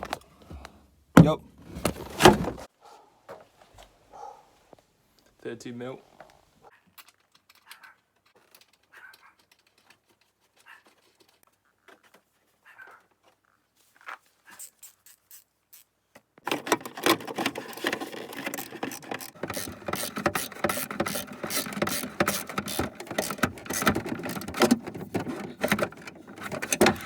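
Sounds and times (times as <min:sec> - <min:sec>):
socket ratchet clicking: 0:16.5 - 0:27.0.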